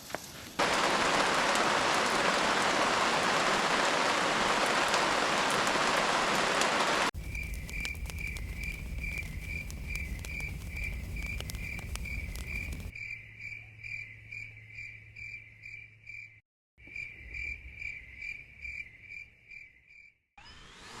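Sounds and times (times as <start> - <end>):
low rumble with faint clicks: 7.2 - 12.9
cricket chirping: 7.2 - 20.1.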